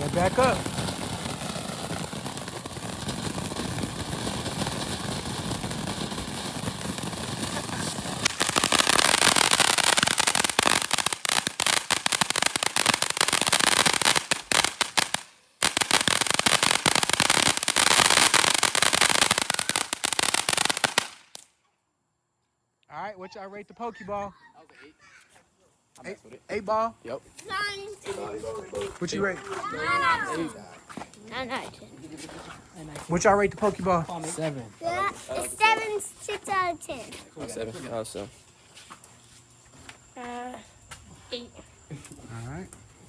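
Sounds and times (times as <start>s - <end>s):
ground firework hissing: 0.0s - 21.4s
firework dense crackling: 0.0s - 21.5s.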